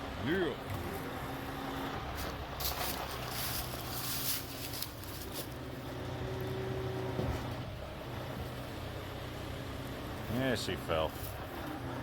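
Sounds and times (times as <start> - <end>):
heavy truck engine running: 0.0 - 12.0.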